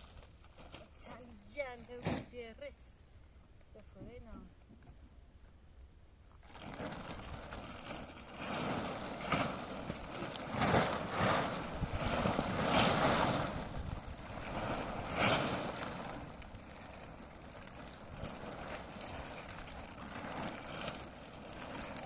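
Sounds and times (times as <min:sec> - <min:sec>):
strong wind gusting on microphone: 0:08.4 - 0:22.0.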